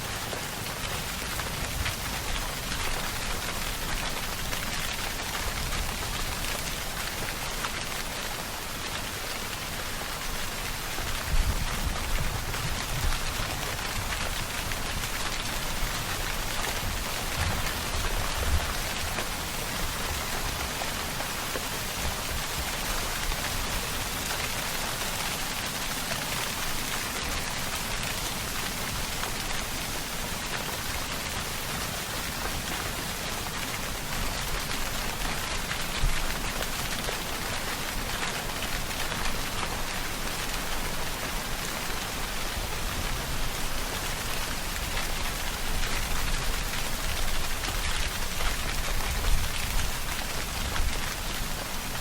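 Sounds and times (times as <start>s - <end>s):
rain falling: 0.0s - 52.0s.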